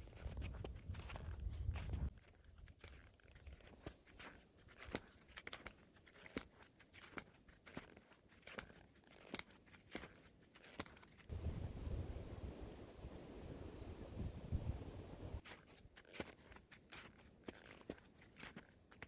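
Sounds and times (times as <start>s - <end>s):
wind rumble on microphone: 0.0s - 2.1s, 11.3s - 15.4s.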